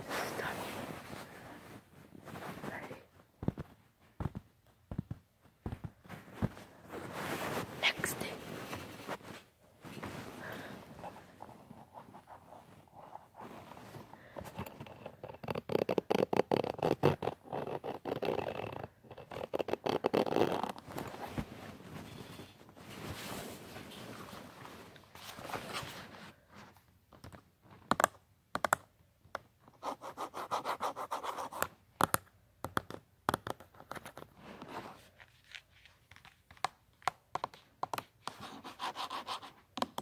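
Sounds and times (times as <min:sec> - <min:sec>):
scratching and rubbing on a surface: 0:04.3 - 0:26.4, 0:29.8 - 0:31.7, 0:37.4 - 0:40.0.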